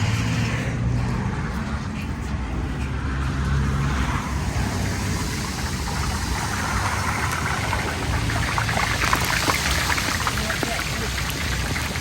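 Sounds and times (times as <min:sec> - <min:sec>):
vehicle engine rumble: 0:00.0 - 0:12.0
deep fryer oil crackling: 0:03.6 - 0:12.0.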